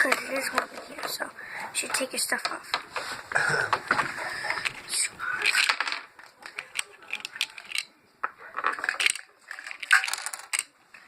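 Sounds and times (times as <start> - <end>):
small hard objects clicking: 5.4 - 7.9, 8.6 - 10.7.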